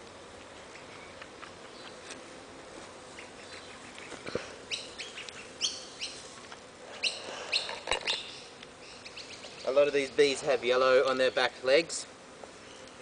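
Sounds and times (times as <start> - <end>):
bird chirping: 3.2 - 6.2, 7.0 - 10.3.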